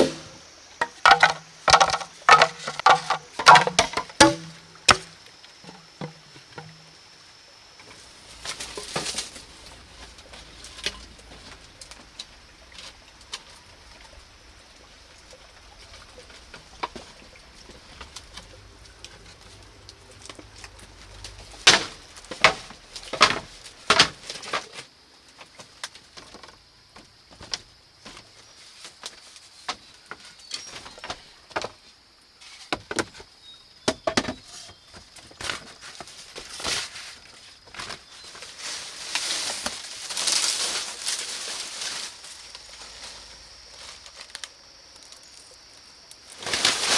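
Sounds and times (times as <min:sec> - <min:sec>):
rustling or scraping: 0:00.0 - 0:06.8, 0:07.9 - 0:13.5, 0:34.4 - 0:44.5, 0:46.3 - 0:46.9.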